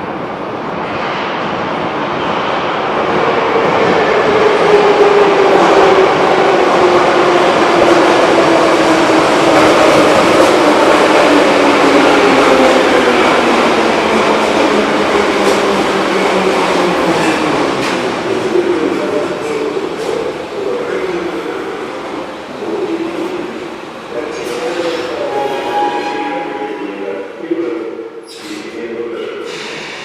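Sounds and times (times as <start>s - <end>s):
train wheels rumbling: 0.1s - 30.0s.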